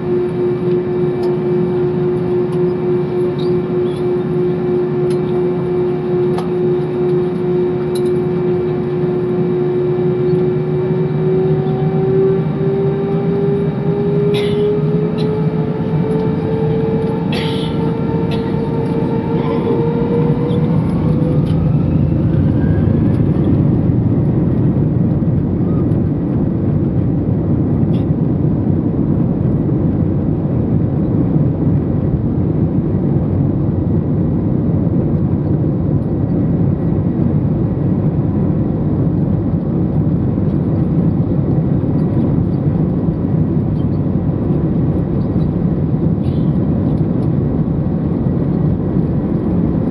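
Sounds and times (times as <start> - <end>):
jet engines roaring: 0.0 - 49.9
rising engine whine: 0.0 - 49.9.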